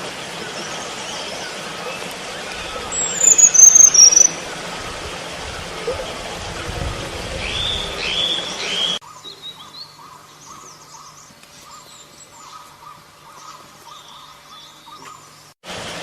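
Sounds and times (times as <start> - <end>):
loud high whistled birdsong: 0.7 - 4.5, 7.4 - 15.3
faint high chirps: 2.9 - 4.4
short bird calls: 3.0 - 4.4.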